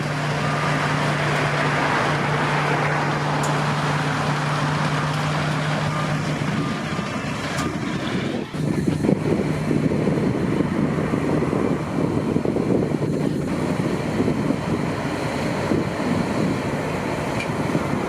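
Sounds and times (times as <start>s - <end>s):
harvest machinery engine droning: 0.0s - 18.0s
wind buffeting microphone: 5.6s - 18.0s.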